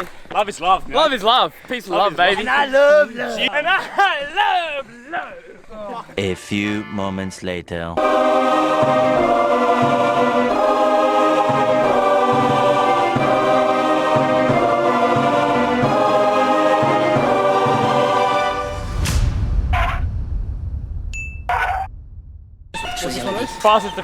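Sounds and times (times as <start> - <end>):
choir singing sustained chords: 8.0 - 19.6.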